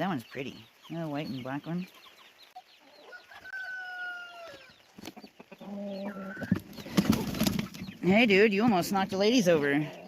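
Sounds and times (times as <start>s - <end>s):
faint chick peeping: 0.0s - 10.0s
rooster crowing: 2.9s - 4.7s.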